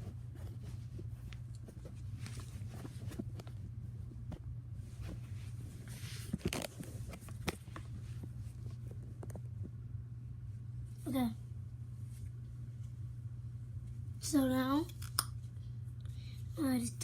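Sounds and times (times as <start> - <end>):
steady low hum: 0.0 - 17.0
clicks and rustles of handling: 4.3 - 9.8.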